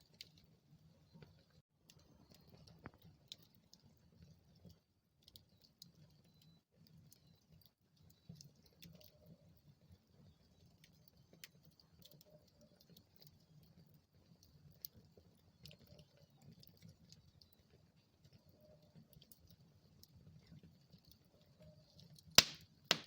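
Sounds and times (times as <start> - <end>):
wood fire crackling and popping: 6.8 - 23.0.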